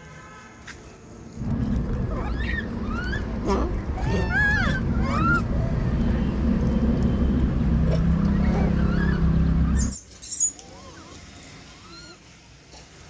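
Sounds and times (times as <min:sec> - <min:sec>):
engine-like rumble: 0:01.4 - 0:10.0.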